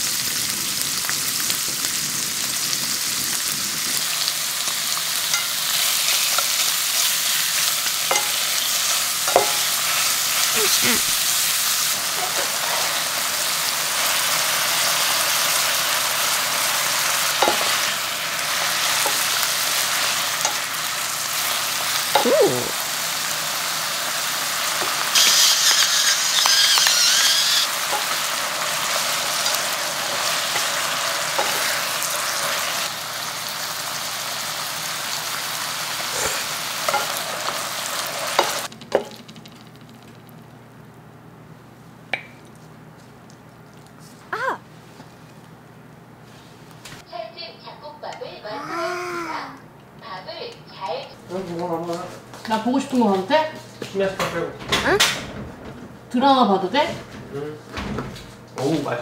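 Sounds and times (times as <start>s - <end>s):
food sizzling in a pan: 0.0s - 39.1s
utensils clicking against pan: 7.9s - 8.7s, 24.8s - 28.3s
pepper mill grinding: 24.6s - 32.8s.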